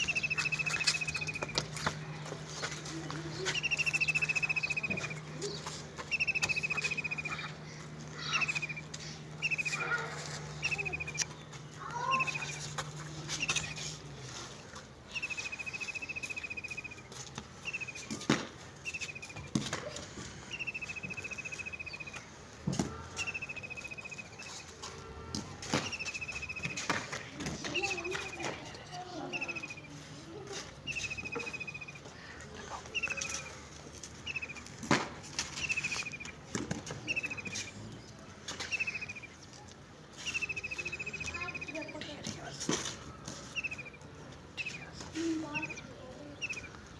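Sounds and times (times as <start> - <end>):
small bird trilling: 0.0 - 1.6, 3.5 - 5.2, 6.1 - 7.5, 8.2 - 11.3, 12.0 - 12.7, 15.1 - 18.2, 20.5 - 22.2, 25.8 - 26.8, 30.9 - 32.0, 34.2 - 34.6, 37.0 - 37.7, 38.6 - 39.3, 40.2 - 42.0, 44.6 - 46.8
songbird fast falling trill: 6.1 - 7.5.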